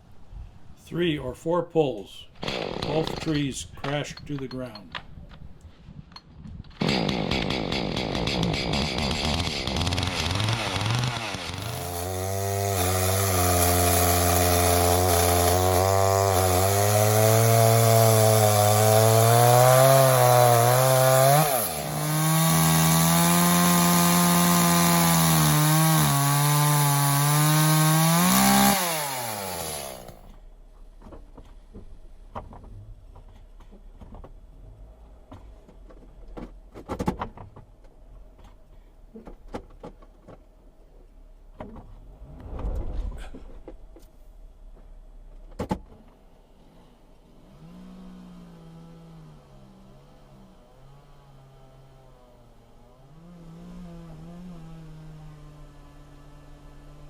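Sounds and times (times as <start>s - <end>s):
chainsaw cutting wood: 2.4s - 4.8s, 6.7s - 30.4s, 47.4s - 57.0s.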